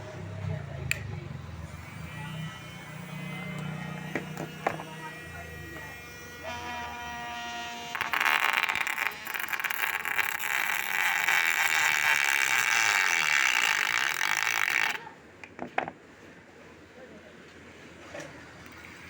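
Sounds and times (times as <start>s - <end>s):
rasping grinding noise: 0.0s - 15.0s
small motor whining: 0.0s - 15.1s.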